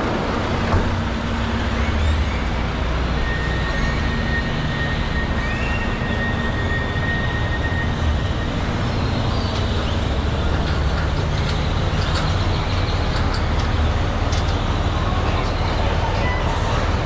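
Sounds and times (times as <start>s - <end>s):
truck engine rumbling: 0.0s - 5.4s.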